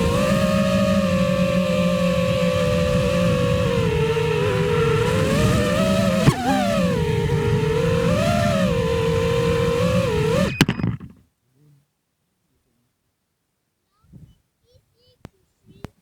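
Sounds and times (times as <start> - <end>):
quadcopter motors whining: 0.0 - 11.1
sharp click: 10.4 - 11.2.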